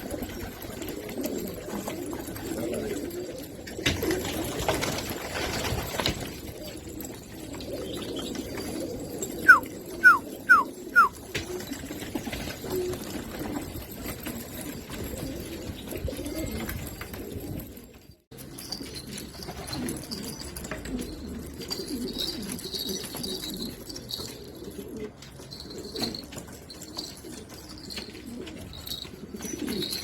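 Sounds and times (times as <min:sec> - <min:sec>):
pigeons cooing: 0:00.0 - 0:17.8, 0:18.6 - 0:30.0
pigeon chirps: 0:07.8 - 0:11.3.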